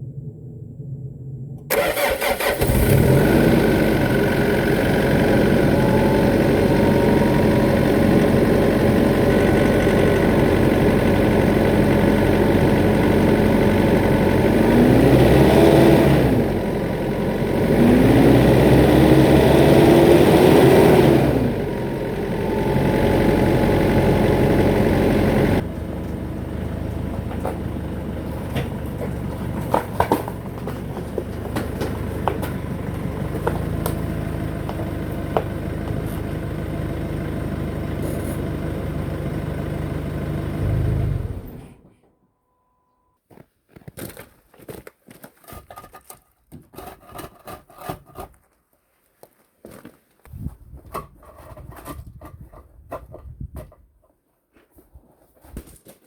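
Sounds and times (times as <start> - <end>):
diesel engine starting and idling: 0.0 - 43.0.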